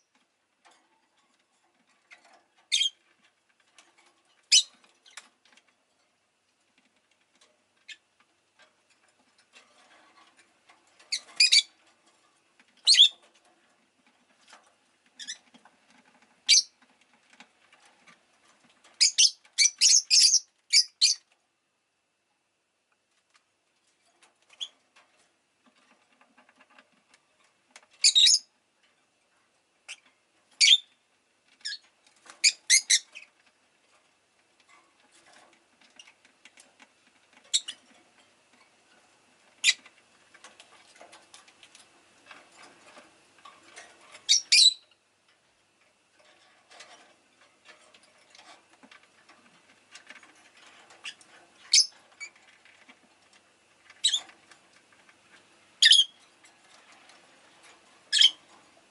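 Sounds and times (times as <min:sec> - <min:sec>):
faint scratching and tapping: 0:00.0 - 0:19.6, 0:22.8 - 0:58.9
lovebird high chirps: 0:11.4 - 0:11.7, 0:12.9 - 0:13.1, 0:16.5 - 0:16.7, 0:19.0 - 0:21.2, 0:28.0 - 0:28.4, 0:30.6 - 0:30.9, 0:44.3 - 0:44.8, 0:51.7 - 0:51.9, 0:55.8 - 0:56.2, 0:58.1 - 0:58.4.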